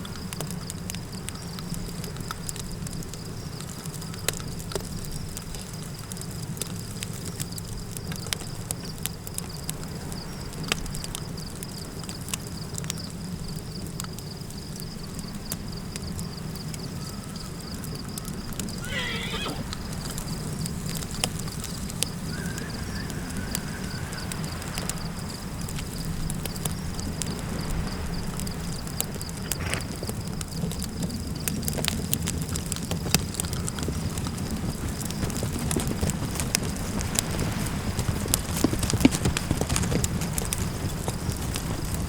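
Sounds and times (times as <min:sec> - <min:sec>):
campfire crackling: 0:00.0 - 0:42.0
wind rushing: 0:21.7 - 0:30.0.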